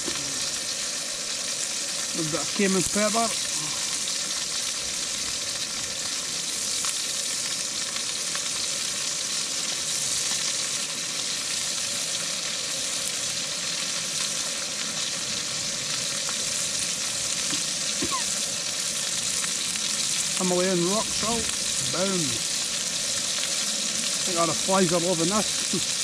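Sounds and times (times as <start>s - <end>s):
burger patties sizzling in pan: 0.0s - 26.0s.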